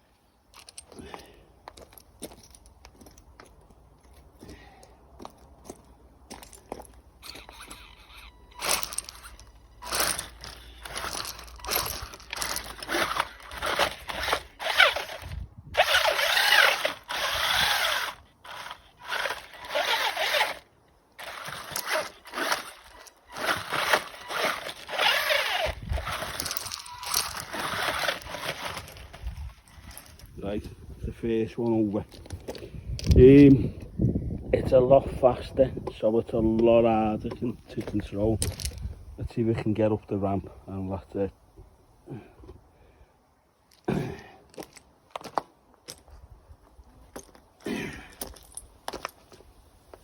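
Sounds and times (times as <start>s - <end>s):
rc truck motor whirring: 7.2s - 29.6s.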